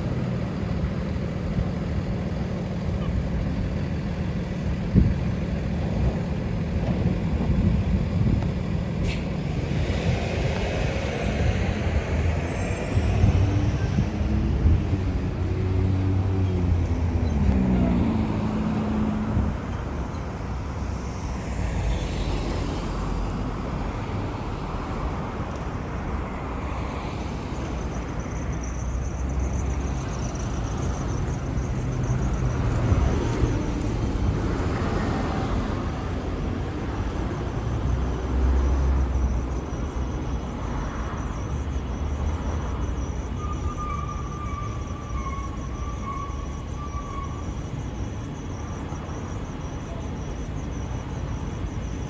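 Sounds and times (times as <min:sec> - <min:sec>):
road traffic passing: 0:00.0 - 0:52.0.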